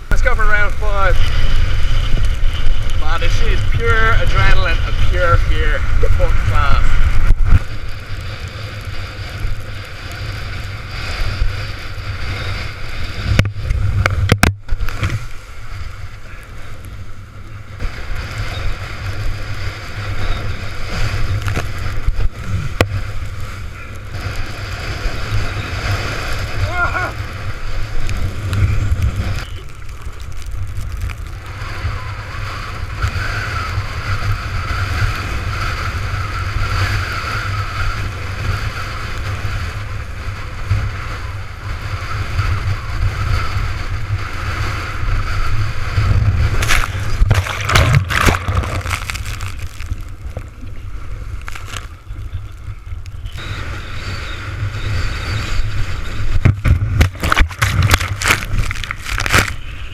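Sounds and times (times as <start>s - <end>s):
wind buffeting microphone: 0.0s - 59.9s
water rushing and sloshing: 46.3s - 52.2s, 56.4s - 59.6s
sharp splashing: 46.5s - 50.2s, 57.0s - 59.6s.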